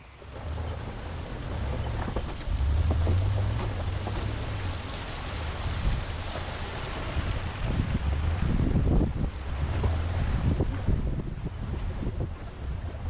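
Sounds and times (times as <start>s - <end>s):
pickup truck low rumble: 0.0s - 13.0s
wind buffeting microphone: 0.2s - 13.0s.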